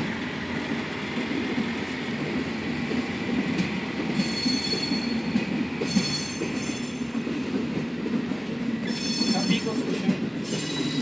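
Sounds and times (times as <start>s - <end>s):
train rumbling: 0.0s - 11.0s
wheels squealing on rails: 4.1s - 7.2s, 8.8s - 11.0s.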